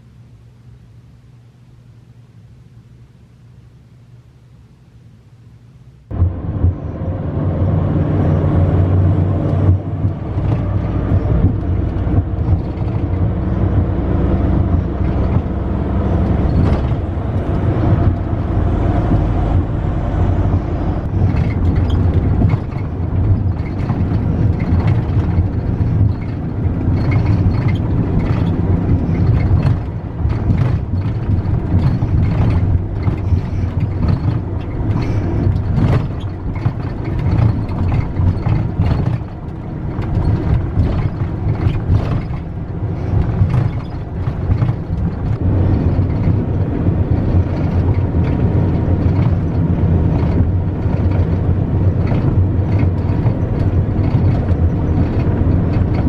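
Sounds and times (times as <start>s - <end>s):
airliner low drone: 6.1s - 56.0s.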